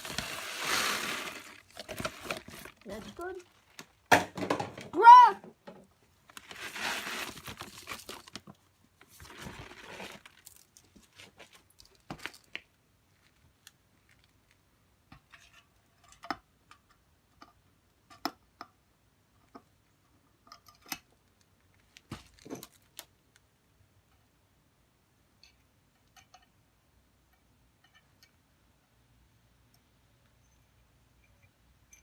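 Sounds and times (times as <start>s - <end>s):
rustling and crunching: 0.0s - 4.8s, 6.1s - 15.8s, 21.2s - 23.4s.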